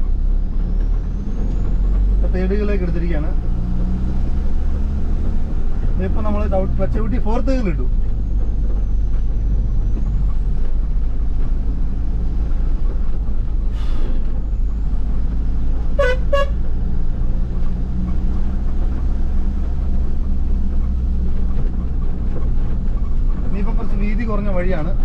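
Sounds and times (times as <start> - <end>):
car engine humming: 0.0 - 25.0
road noise: 0.0 - 25.0
car horn toots: 16.0 - 16.6.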